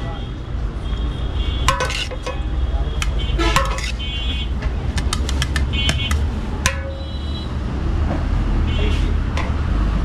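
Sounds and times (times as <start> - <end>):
traffic rumble: 0.0 - 10.0
sharp metallic clicks: 4.6 - 7.0.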